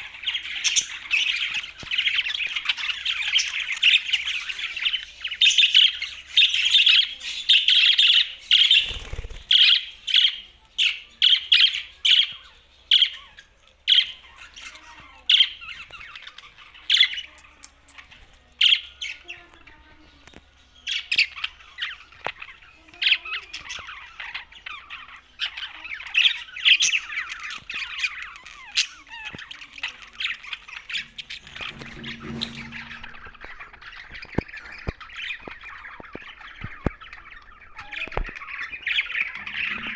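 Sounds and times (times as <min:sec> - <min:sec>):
budgerigars chirping and chattering: 0:00.0 - 0:39.9
low thump: 0:31.1 - 0:33.6.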